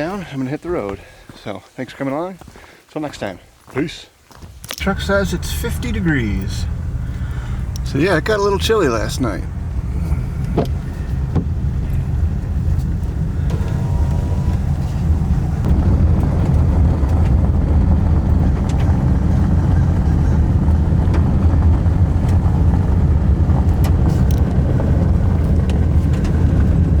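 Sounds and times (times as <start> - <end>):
truck engine and road rumble: 4.3 - 27.0.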